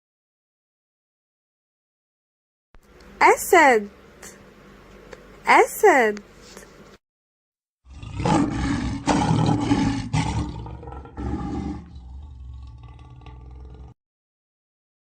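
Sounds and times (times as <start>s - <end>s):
lion roaring: 7.8s - 14.0s.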